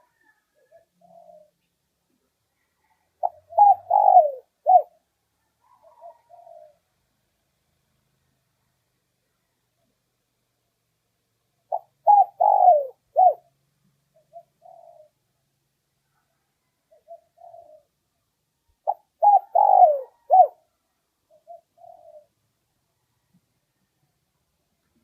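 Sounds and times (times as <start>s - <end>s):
dove cooing: 0.0s - 1.7s, 2.6s - 5.0s, 5.6s - 6.9s, 11.6s - 15.3s, 16.9s - 18.0s, 18.8s - 22.4s.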